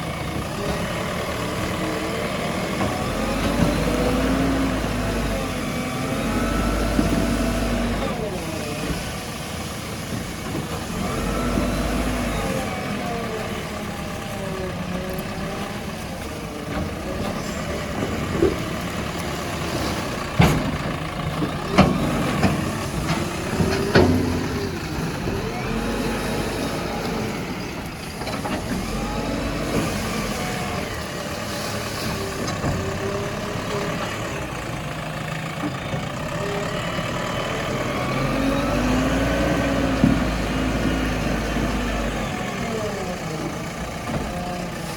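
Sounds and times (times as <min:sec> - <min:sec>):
diesel engine revving: 0:00.0 - 0:44.9.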